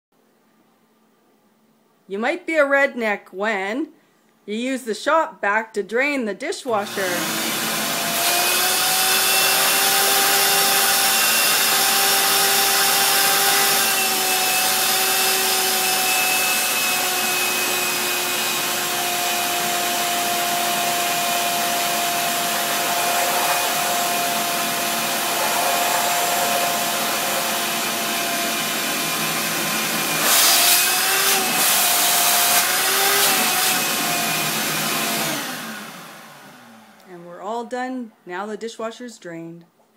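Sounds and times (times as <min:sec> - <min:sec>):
shop vac motor whine: 0:06.7 - 0:37.1
rushing suction noise: 0:06.8 - 0:36.6.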